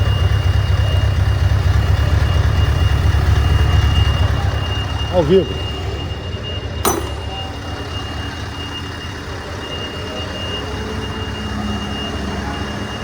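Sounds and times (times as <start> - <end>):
sharp click: 6.9 - 7.6.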